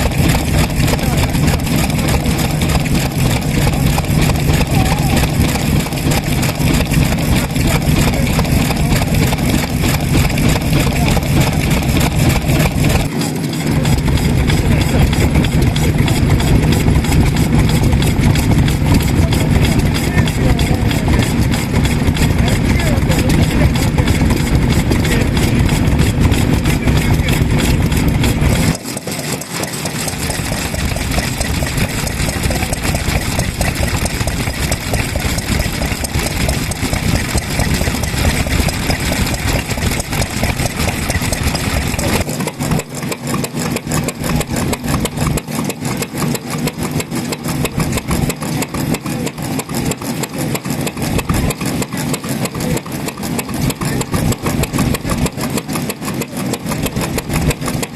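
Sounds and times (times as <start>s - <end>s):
stationary farm engines running: 0.0s - 57.9s.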